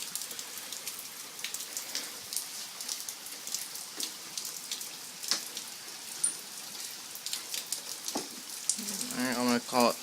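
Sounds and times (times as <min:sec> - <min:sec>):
heavy rain downpour: 0:00.0 - 0:10.0
raindrops ticking close by: 0:00.0 - 0:10.0.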